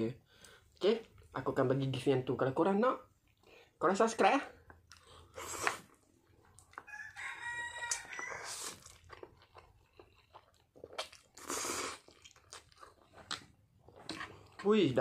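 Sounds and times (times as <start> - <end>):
person chewing noodles: 4.5 - 15.0
wet mouth clicks: 4.7 - 6.8.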